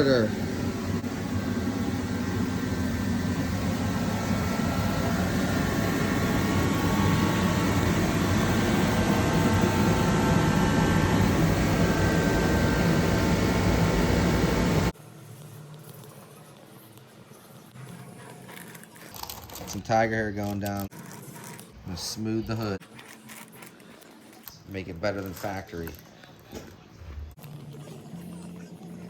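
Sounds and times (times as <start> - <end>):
machine running loudly: 0.0 - 15.0.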